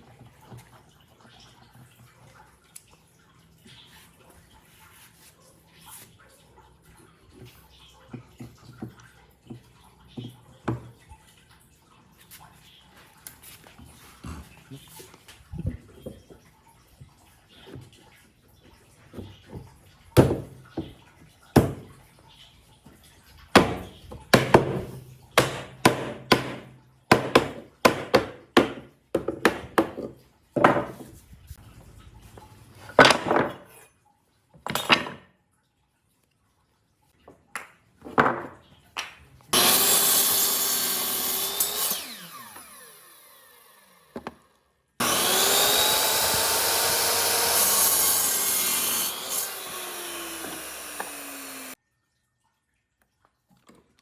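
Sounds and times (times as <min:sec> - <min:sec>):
power tool running: 0:39.6 - 0:44.1, 0:45.0 - 0:51.8
hand tool strokes on wood: 0:45.0 - 0:51.8.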